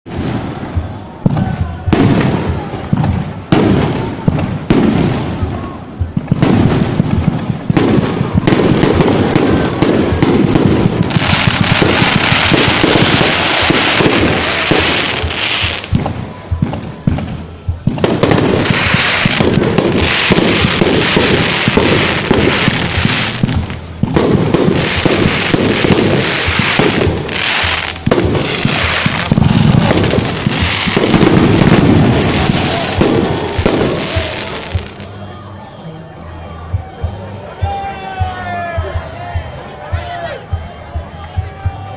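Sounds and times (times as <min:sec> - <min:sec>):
fireworks pops and bangs: 0:00.1 - 0:35.1
fireworks hissing crackle: 0:08.2 - 0:16.0, 0:18.2 - 0:35.1.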